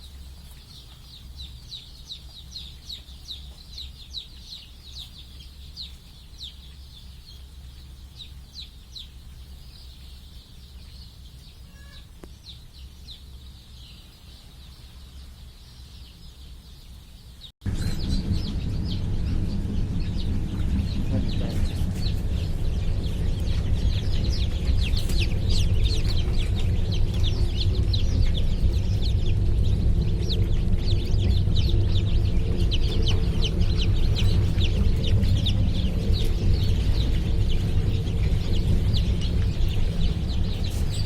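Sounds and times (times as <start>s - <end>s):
chicks peeping: 0.0s - 41.0s
loud low rumble: 17.6s - 41.0s.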